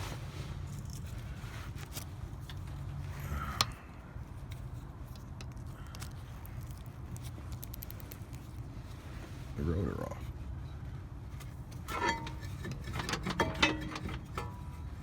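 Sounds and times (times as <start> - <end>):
metal tools clicking and scraping: 11.7 - 15.0
metal clink: 11.9 - 14.8.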